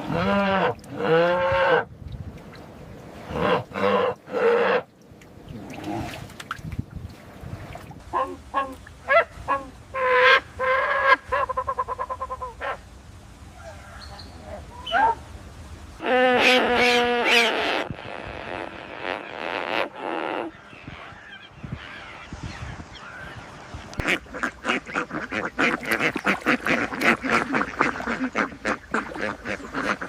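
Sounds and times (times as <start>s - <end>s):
waterfowl calling: 3.3s - 4.9s, 8.1s - 12.8s, 16.0s - 30.0s.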